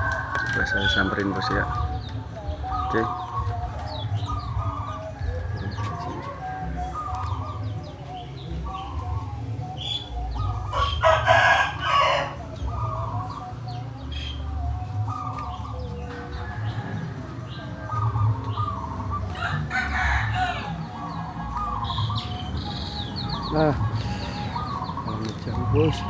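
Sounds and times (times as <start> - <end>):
rooster crowing: 0.0 - 1.8, 10.7 - 13.1, 16.2 - 22.2
chickens clucking: 0.0 - 26.0
small birds chirping: 0.0 - 26.0.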